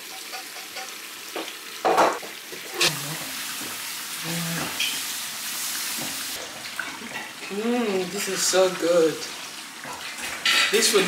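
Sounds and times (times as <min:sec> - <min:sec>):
stew sizzling in oil: 0:00.0 - 0:11.0.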